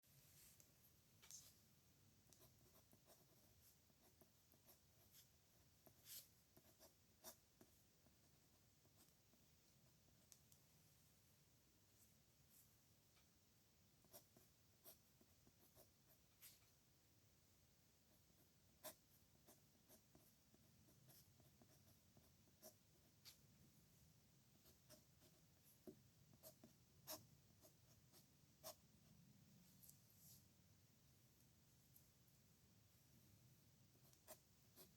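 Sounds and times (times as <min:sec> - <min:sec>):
pen scratching on paper: 0:02.3 - 0:09.3, 0:14.0 - 0:16.6, 0:18.1 - 0:23.4, 0:24.6 - 0:28.8, 0:34.0 - 0:34.9.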